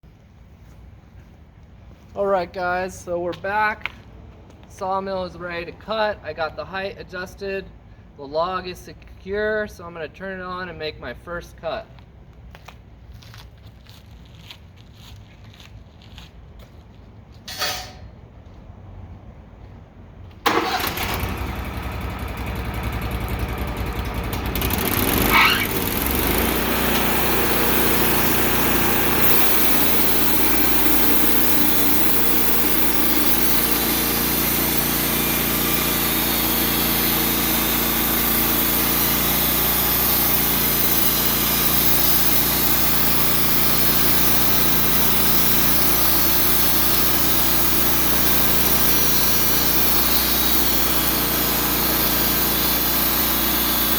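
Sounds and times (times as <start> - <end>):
sawmill motor running: 20.5 - 53.9
saw blade cutting log: 24.4 - 53.9.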